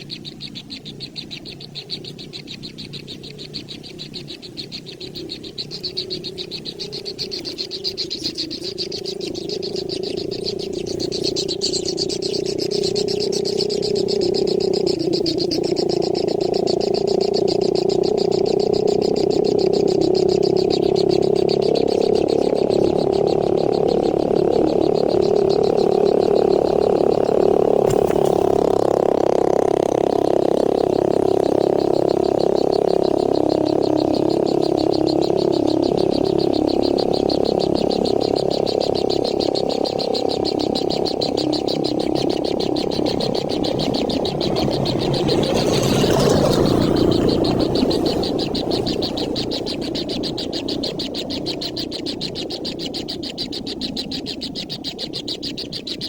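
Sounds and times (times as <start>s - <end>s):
young bird begging chirps: 0.0s - 15.8s
rapid high pulsing: 0.0s - 55.8s
chorus of animal calls: 0.0s - 56.0s
low steady drone: 0.0s - 56.0s.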